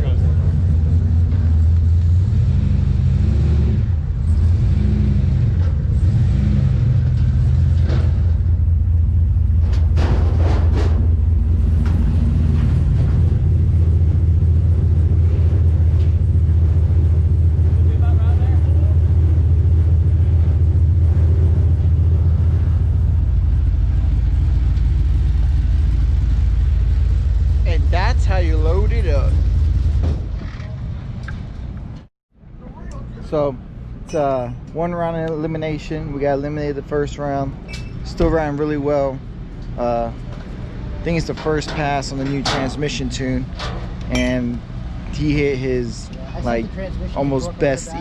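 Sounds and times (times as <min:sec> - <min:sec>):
truck engine running: 0:00.0 - 0:32.1.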